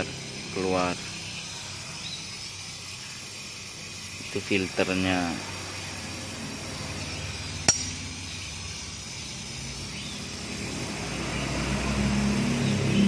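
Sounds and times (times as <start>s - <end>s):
workshop background noise: 0.0s - 13.0s
metallic tap with ring: 7.6s - 8.2s.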